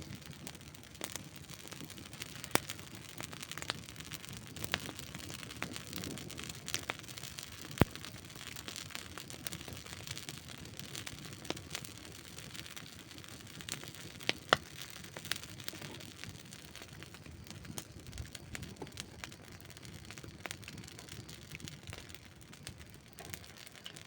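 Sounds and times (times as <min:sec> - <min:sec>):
campfire crackling and popping: 0:00.0 - 0:24.0.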